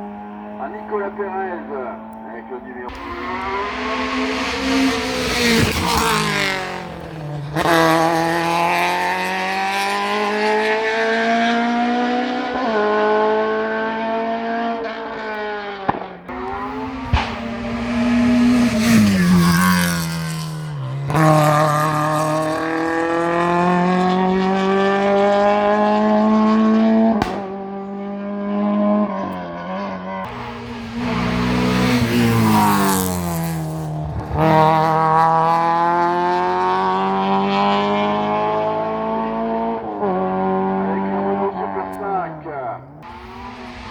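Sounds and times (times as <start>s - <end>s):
racing car engine revving: 0.0s - 43.9s.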